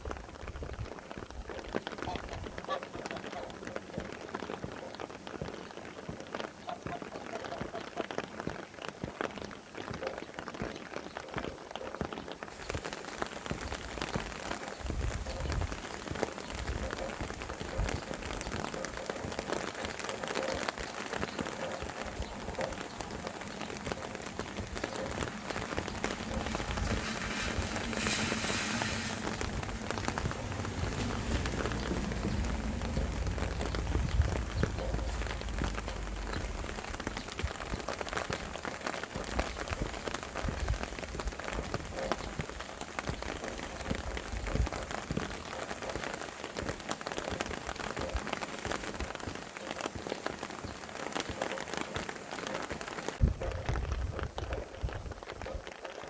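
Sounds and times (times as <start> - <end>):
rain falling: 0.0 - 56.0
wind gusts rumbling: 12.6 - 45.6, 53.2 - 55.5
hissing rush: 22.5 - 37.1.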